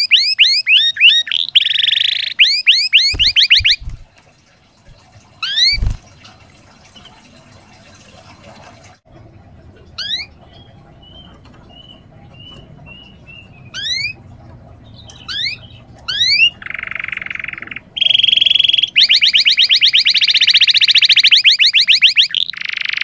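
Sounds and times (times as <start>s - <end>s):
canary singing: 0.0s - 4.0s, 5.4s - 6.0s, 10.0s - 23.0s.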